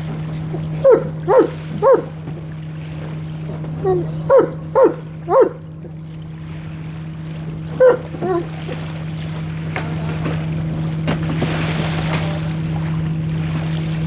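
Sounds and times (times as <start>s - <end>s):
boat motor humming: 0.0s - 14.0s
wind and water noise: 0.0s - 14.0s
dog barking: 0.8s - 2.2s, 3.8s - 5.7s, 7.8s - 8.5s.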